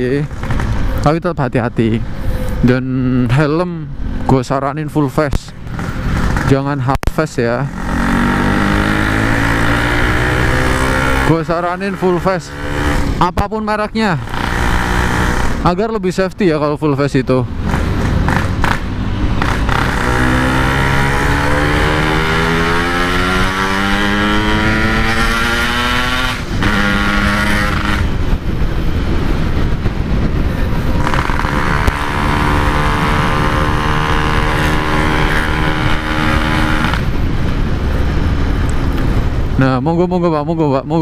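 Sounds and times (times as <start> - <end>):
two-stroke motorcycle engine accelerating: 7.6 - 13.3, 14.2 - 15.7, 17.6 - 39.4.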